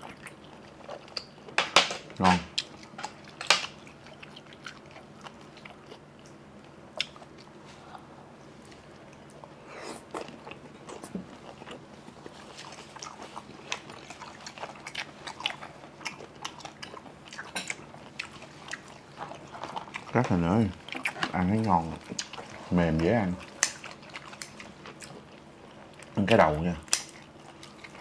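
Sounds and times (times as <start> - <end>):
chewing seafood with crunches: 0.0 - 28.0.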